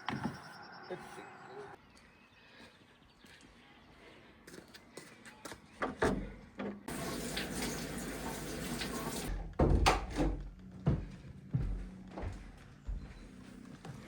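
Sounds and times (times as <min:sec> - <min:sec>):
liquid pouring: 0:06.9 - 0:09.3.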